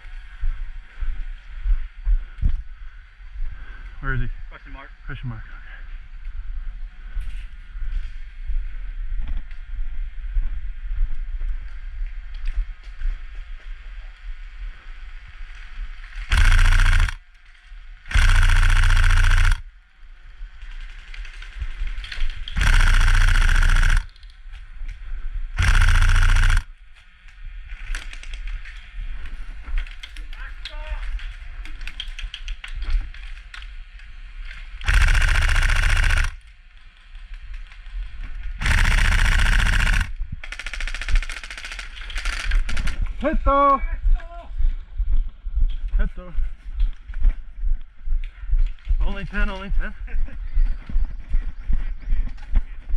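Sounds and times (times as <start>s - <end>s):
airsoft rifle firing bursts: 16.3s - 17.2s, 18.1s - 19.6s, 22.5s - 24.1s, 25.6s - 26.7s, 34.8s - 36.4s, 38.6s - 43.0s.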